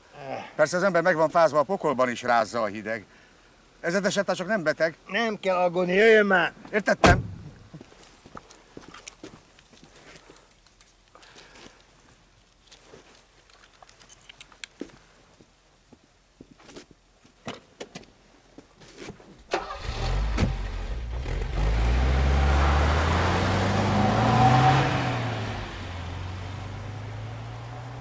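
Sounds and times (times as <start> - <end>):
faint clicks: 8.0 - 15.5
car engine passing by: 19.6 - 28.0.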